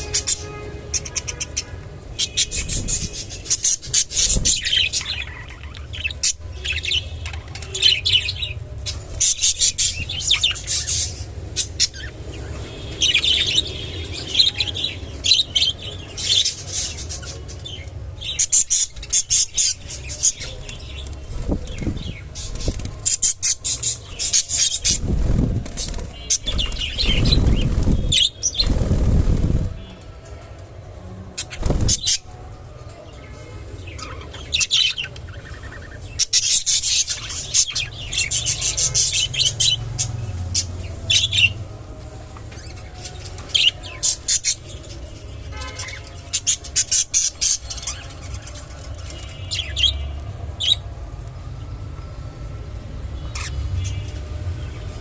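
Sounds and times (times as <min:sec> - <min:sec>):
wings flapping: 0:24.8 - 0:29.8, 0:31.5 - 0:32.2.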